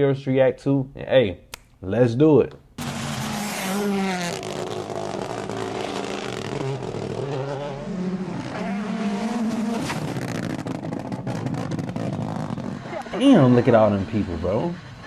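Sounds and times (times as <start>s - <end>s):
rally car engine revving: 2.8s - 15.0s.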